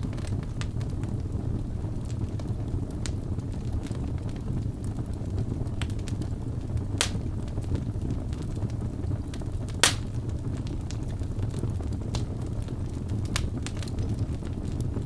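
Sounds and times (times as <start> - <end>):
wood fire flames rumbling: 0.0 - 15.0
sharp pops of burning wood: 7.0 - 7.3, 9.8 - 10.2
fire crackling: 7.0 - 7.6, 9.8 - 11.1.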